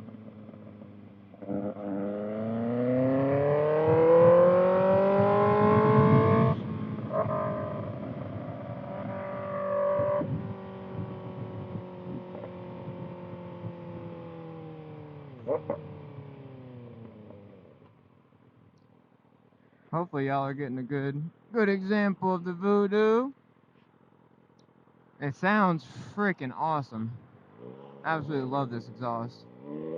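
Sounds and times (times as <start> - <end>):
motorcycle engine revving: 0.0 - 18.6, 27.4 - 29.9.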